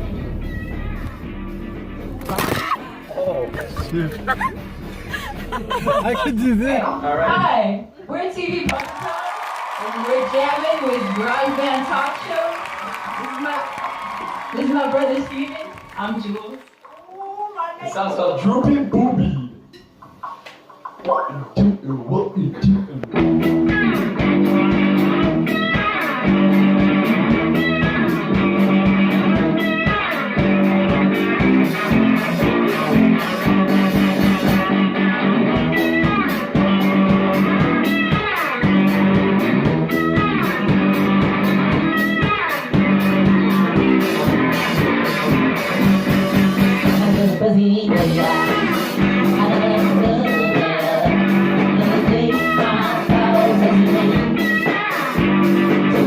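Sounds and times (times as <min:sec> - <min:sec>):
electric guitar chords: 0:00.0 - 0:07.6, 0:23.0 - 0:56.0
drum beat: 0:02.6 - 0:07.6, 0:22.6 - 0:34.8, 0:35.4 - 0:47.4.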